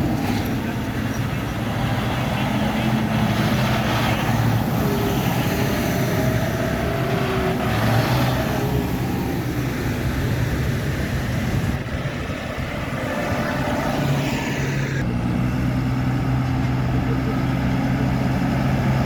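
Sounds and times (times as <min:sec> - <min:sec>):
tractors driving past: 0:00.0 - 0:19.0.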